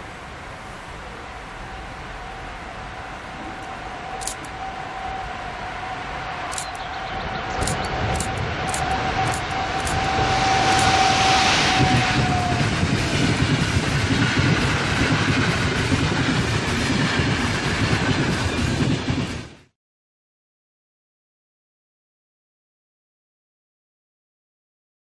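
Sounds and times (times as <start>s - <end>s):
electric locomotive whine: 0.0s - 19.7s
train coaches clattering: 3.2s - 4.9s, 6.4s - 19.6s.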